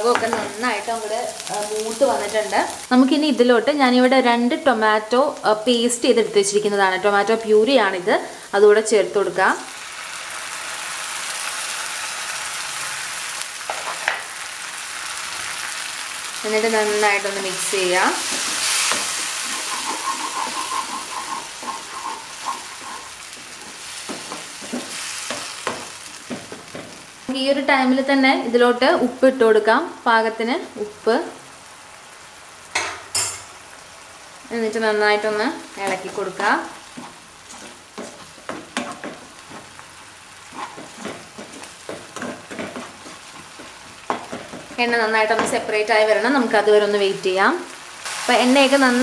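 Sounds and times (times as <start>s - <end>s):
masala sizzling in oil: 0.0s - 49.0s
spatula stirring: 17.0s - 27.0s, 35.8s - 45.7s.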